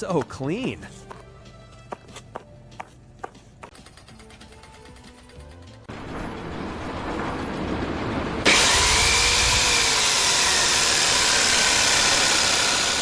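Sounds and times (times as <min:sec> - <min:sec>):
power tool running: 0:08.4 - 0:13.0.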